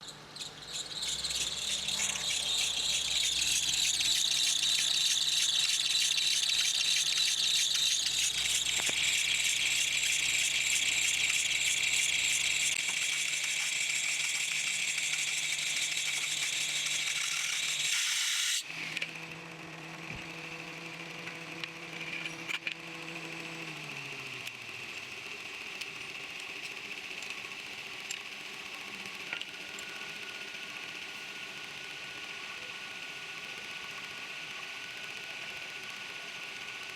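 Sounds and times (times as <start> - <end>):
engine hum: 0.0 - 12.8
engine belt squealing: 0.0 - 18.6.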